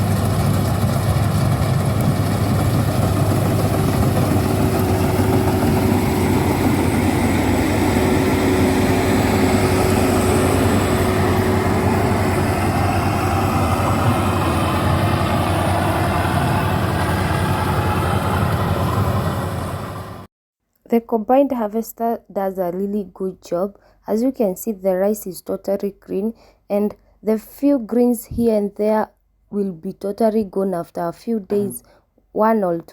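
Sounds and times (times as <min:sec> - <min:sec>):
combine harvester engine drone: 0:00.0 - 0:20.3
steady whine: 0:00.0 - 0:20.3.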